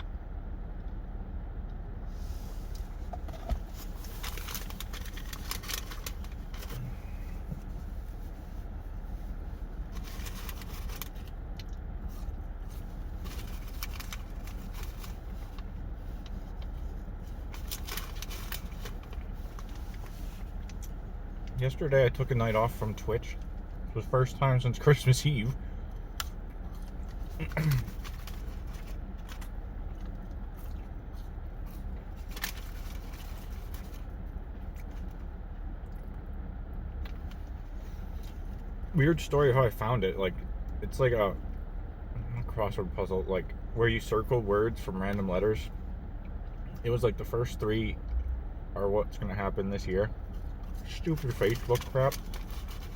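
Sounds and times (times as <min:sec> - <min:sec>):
low background rumble: 0:00.0 - 0:52.9
steady low hum: 0:00.0 - 0:52.9
food packaging crinkling: 0:03.7 - 0:06.8, 0:09.9 - 0:11.4, 0:12.7 - 0:16.7, 0:17.4 - 0:20.8, 0:26.2 - 0:34.1, 0:50.6 - 0:52.9.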